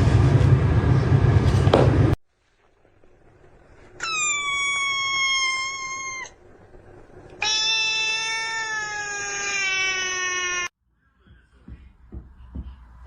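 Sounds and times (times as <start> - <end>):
cat meowing: 4.0 - 6.4, 7.3 - 10.7.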